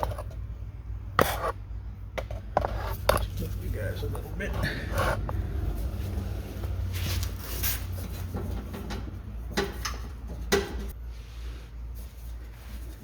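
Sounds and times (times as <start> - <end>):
metal parts knocking and scraping: 0.0 - 0.4
low steady hum: 0.0 - 13.0.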